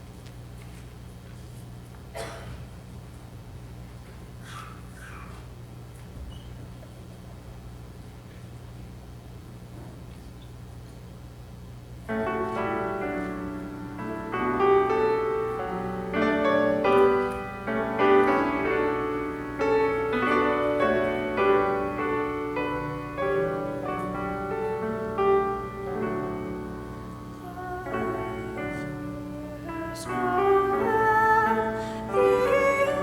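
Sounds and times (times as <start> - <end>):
piano playing chords and melody: 12.1 - 33.0.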